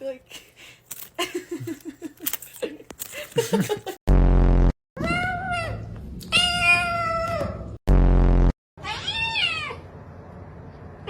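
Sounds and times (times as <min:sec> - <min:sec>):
loud low buzz: 0:04.1 - 0:04.8, 0:07.9 - 0:08.6
cat meowing: 0:08.8 - 0:09.8.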